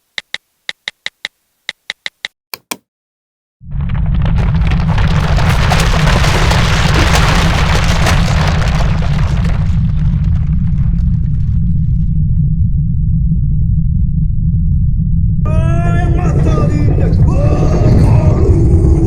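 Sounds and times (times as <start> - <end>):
deep earthquake rumble: 3.6 - 19.0
crackling rattling noise: 3.7 - 12.5.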